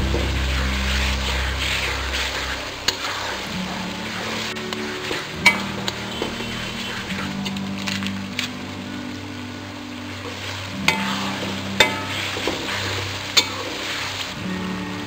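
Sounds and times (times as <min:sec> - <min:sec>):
onions sizzling in oil: 0:00.0 - 0:15.0
ladle scraping a wok: 0:00.1 - 0:08.0, 0:10.3 - 0:14.3.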